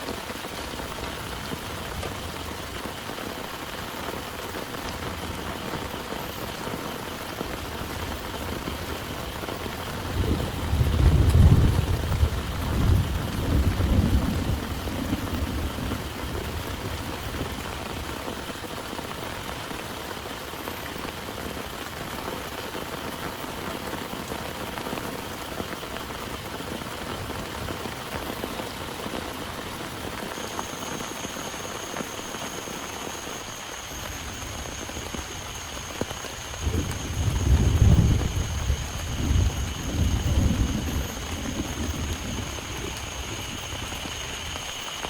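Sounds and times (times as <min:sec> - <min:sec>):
heavy rain falling: 0:00.0 - 0:45.0
thunder rumble: 0:00.6 - 0:19.2, 0:33.9 - 0:44.9.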